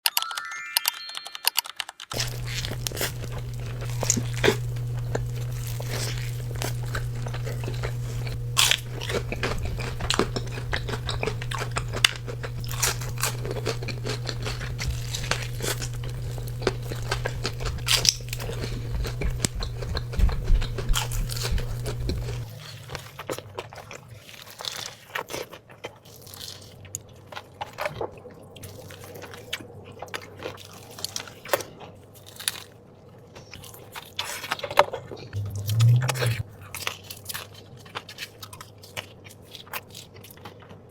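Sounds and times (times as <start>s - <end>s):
biting and chewing: 2.1s - 40.9s
low hum: 2.2s - 22.5s, 35.3s - 36.5s.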